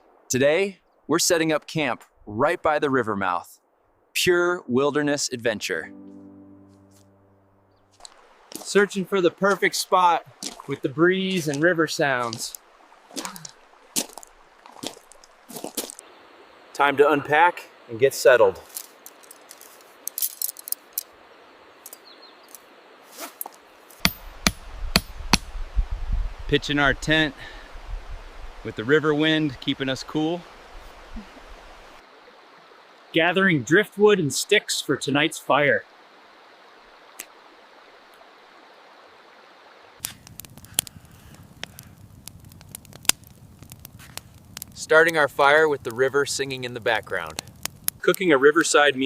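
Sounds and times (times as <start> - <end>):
steady outdoor hiss: 0.0 - 49.0
river water rushing: 7.9 - 22.0
campfire crackling: 7.9 - 33.2, 35.8 - 49.0
hammer driving tent stakes: 24.0 - 25.5
faint clicks: 40.0 - 45.2.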